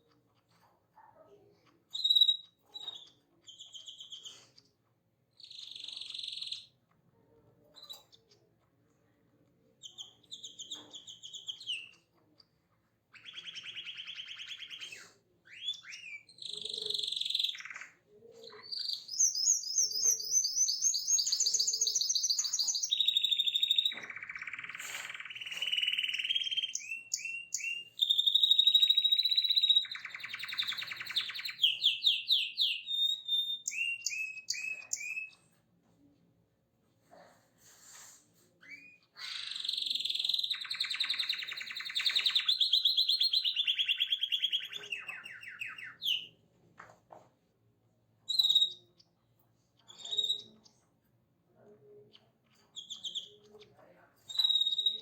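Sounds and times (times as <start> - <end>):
songbird singing: 15.5 - 35.5, 39.1 - 46.3.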